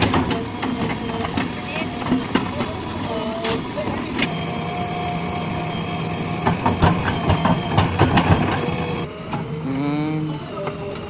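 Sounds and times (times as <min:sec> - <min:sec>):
diesel engine running: 0:00.0 - 0:09.1.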